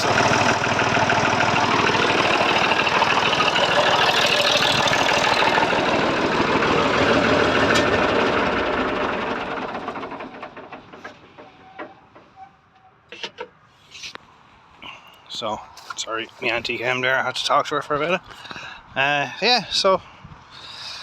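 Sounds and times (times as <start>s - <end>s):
tractor engine running: 0.0s - 12.4s.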